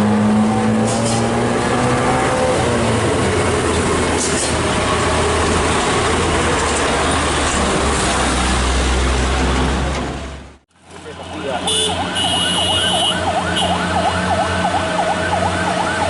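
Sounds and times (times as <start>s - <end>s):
heavy vehicle engine running: 0.0s - 16.0s
road and tyre noise: 0.0s - 16.0s.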